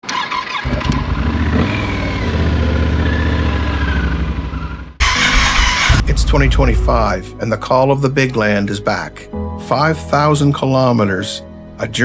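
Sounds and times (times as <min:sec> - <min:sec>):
motorcycle engine revving: 0:00.5 - 0:07.2
loud rushing noise: 0:05.0 - 0:07.4.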